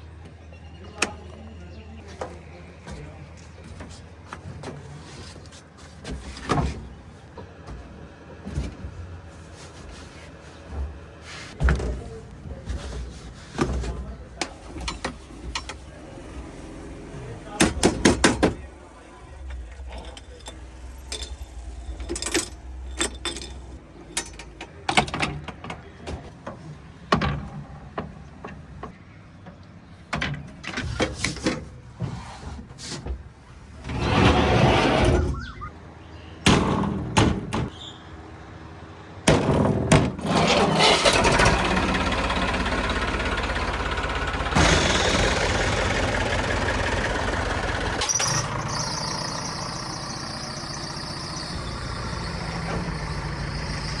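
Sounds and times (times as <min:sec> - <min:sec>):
diesel engine chugging: 0:13.1 - 0:24.1, 0:38.3 - 0:54.0
knocks and clanks: 0:17.5 - 0:18.7, 0:36.4 - 0:37.7, 0:39.2 - 0:41.8.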